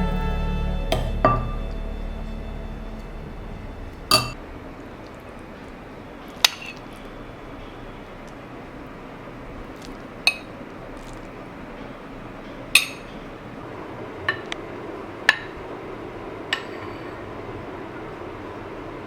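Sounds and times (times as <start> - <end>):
dishes and utensils clinking: 4.1 - 4.4.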